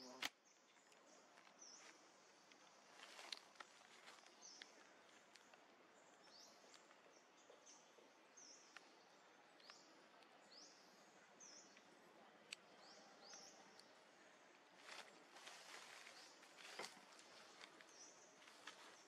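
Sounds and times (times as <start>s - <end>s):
soft hiss: 0.0s - 19.0s
faint clicks: 11.7s - 14.0s.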